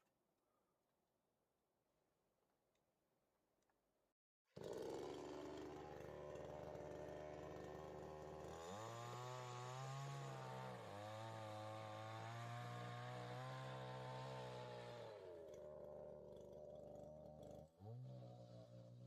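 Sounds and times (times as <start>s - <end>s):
small engine revving: 4.6s - 19.0s.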